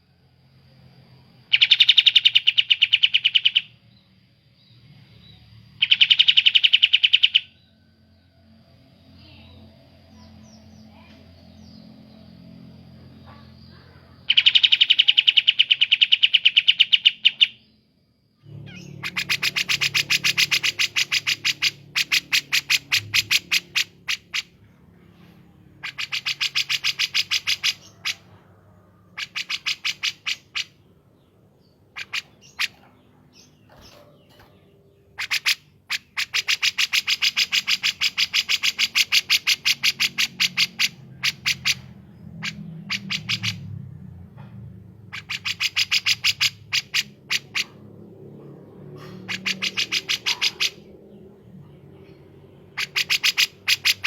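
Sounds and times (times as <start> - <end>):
rapid sharp high bird chirps: 1.4 - 3.9, 5.2 - 7.6, 10.1 - 17.8, 18.4 - 28.4, 29.0 - 43.8, 45.0 - 47.9, 48.9 - 51.2, 52.6 - 54.0
softer lower bird calls: 49.0 - 51.4.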